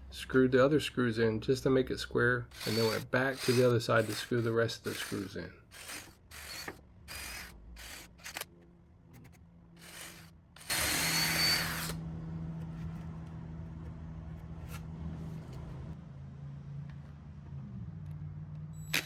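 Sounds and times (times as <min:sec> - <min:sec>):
power drill driving screws: 0:02.5 - 0:08.5, 0:09.8 - 0:12.0.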